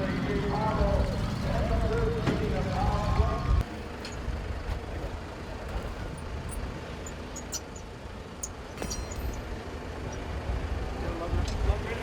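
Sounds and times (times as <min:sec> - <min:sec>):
low outdoor rumble: 0:00.0 - 0:12.0
short high squeak: 0:07.1 - 0:07.8.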